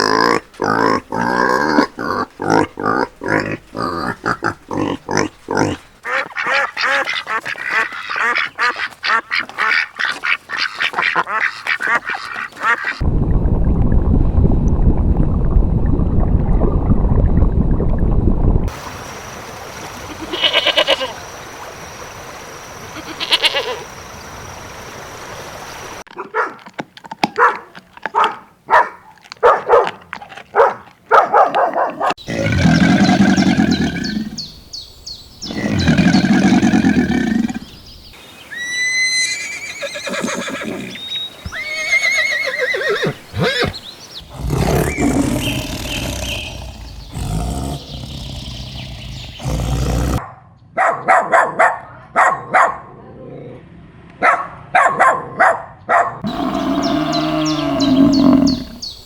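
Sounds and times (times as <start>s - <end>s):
long low animal calls: 41.5s - 50.2s, 56.2s - 58.9s.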